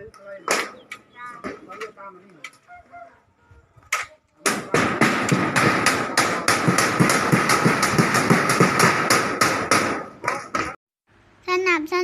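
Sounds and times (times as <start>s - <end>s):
rapid hammer strikes: 4.0s - 10.8s.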